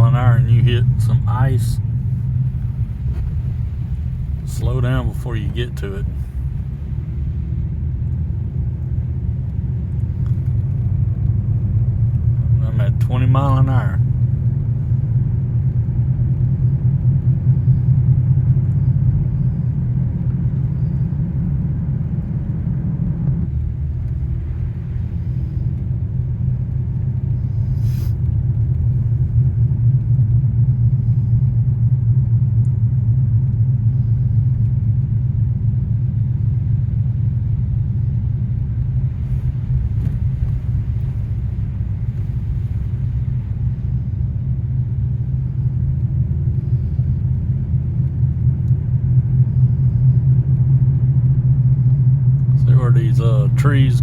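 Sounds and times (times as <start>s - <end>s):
car driving rumble inside cabin: 0.0s - 54.0s.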